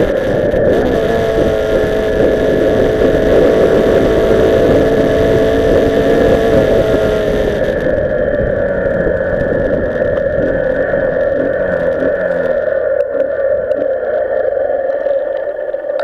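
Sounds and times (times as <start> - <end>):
motorcycle engine running: 0.0 - 12.6
wind noise on microphone: 0.0 - 14.2.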